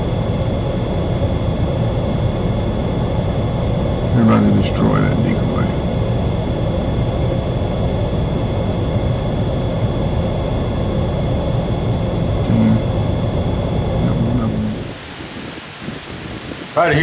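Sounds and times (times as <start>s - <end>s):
faint high whine: 0.0s - 17.0s
wind buffeting microphone: 13.3s - 17.0s.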